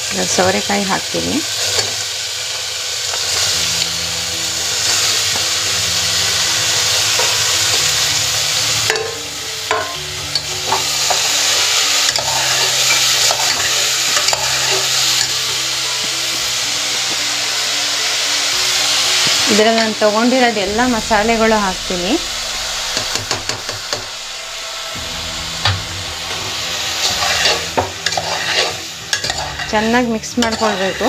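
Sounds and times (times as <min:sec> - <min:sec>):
vegetables sizzling in oil: 0:00.0 - 0:31.0.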